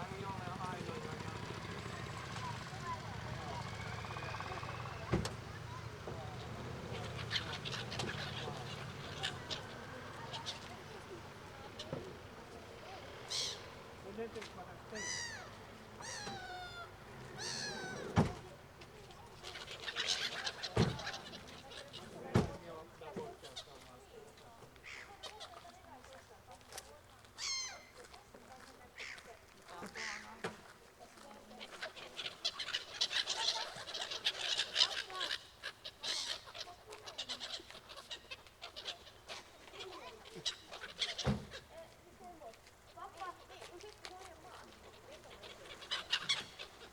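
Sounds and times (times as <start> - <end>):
birds mewing calls: 0.0 - 26.2, 27.2 - 46.9
quick short bird calls: 15.0 - 18.3.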